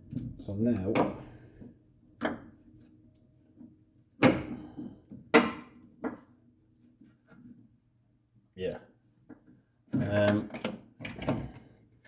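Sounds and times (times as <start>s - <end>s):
hand tools knocking and clunking: 0.1s - 1.3s.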